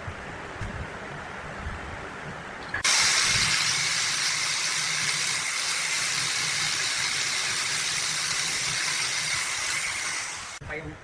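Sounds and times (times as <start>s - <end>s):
steady hiss: 2.8s - 10.7s.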